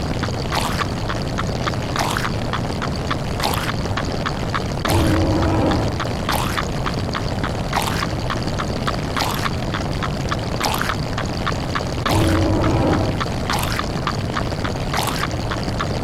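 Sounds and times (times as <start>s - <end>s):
quick ticks: 0.0s - 16.0s.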